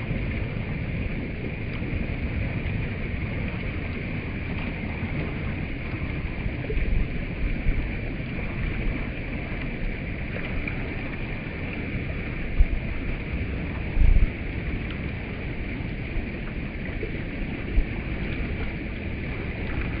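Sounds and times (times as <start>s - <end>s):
stream water flowing: 0.0s - 20.0s
wind thumps on microphone: 5.8s - 9.2s, 12.3s - 14.5s.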